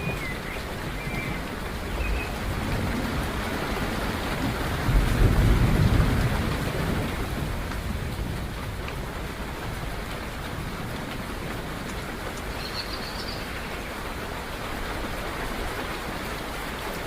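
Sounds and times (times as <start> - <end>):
thunder rumble: 0.0 - 12.6
steady rain falling: 0.0 - 17.0.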